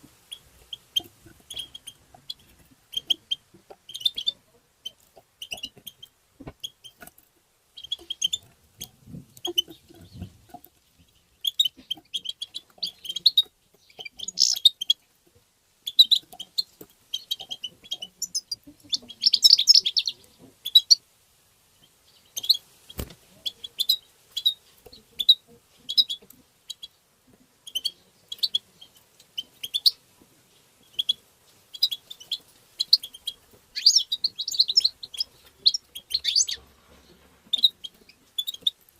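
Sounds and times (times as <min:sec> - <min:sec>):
finch twittering: 0:09.4 - 0:15.0, 0:15.8 - 0:21.0, 0:30.8 - 0:36.7.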